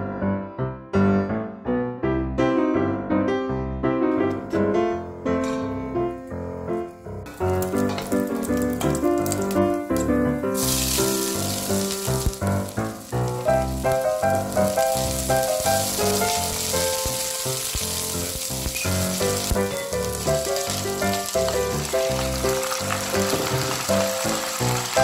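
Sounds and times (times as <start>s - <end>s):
background music: 0.0s - 25.0s
onion sizzling in fat: 7.1s - 25.0s.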